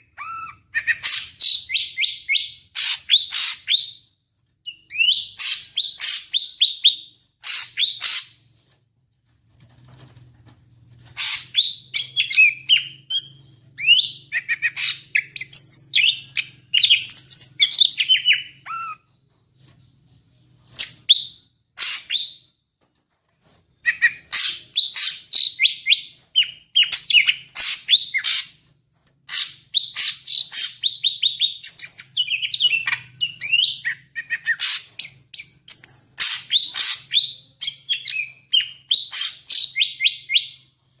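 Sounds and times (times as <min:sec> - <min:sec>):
bird singing chirps and whistles: 0:29.3 - 0:40.6.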